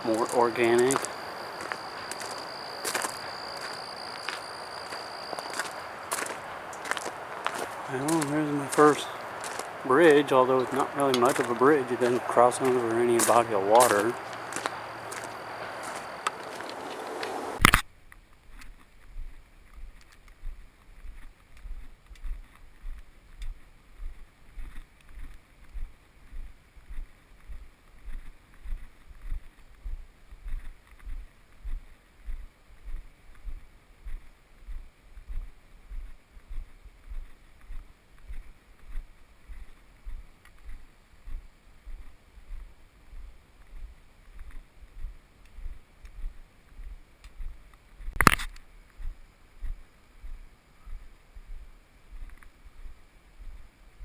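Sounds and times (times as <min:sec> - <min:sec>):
footsteps on a trail: 0:00.0 - 0:17.6, 0:19.1 - 0:53.7
loud crunch: 0:00.0 - 0:17.9, 0:48.1 - 0:49.8.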